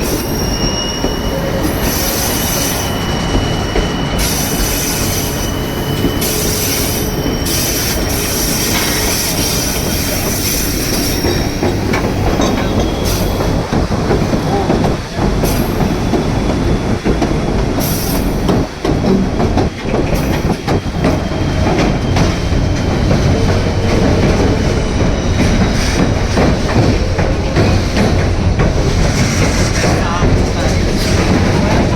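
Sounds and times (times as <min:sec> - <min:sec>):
high wheel squeal: 0:00.0 - 0:14.7, 0:20.1 - 0:28.0
train rumbling with wheel clatter: 0:00.0 - 0:31.9.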